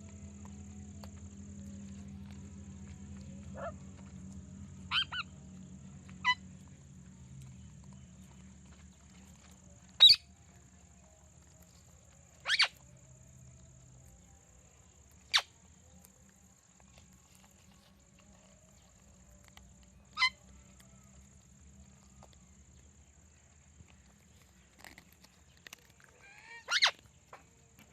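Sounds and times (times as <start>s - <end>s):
parrots screeching: 4.9s - 5.3s, 10.0s - 10.2s, 12.4s - 12.8s, 20.1s - 20.4s, 26.2s - 27.0s.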